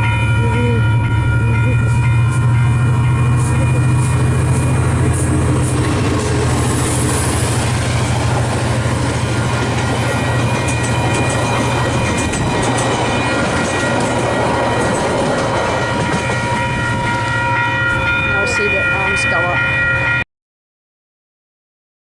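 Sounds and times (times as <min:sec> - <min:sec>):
level crossing bells ringing: 0:00.0 - 0:07.4, 0:08.9 - 0:20.2
diesel locomotive humming: 0:00.0 - 0:20.2
train wheels clicking: 0:01.4 - 0:17.5.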